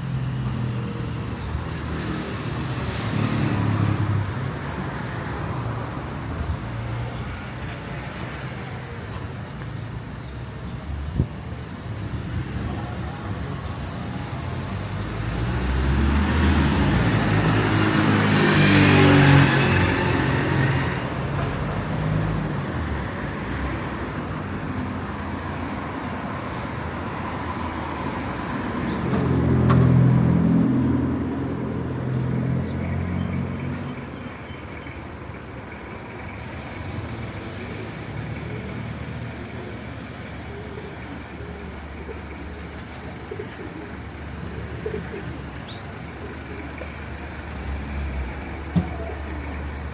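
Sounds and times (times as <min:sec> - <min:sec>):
town street noise: 0:00.0 - 0:49.9
motor vehicles driving past: 0:14.4 - 0:34.2.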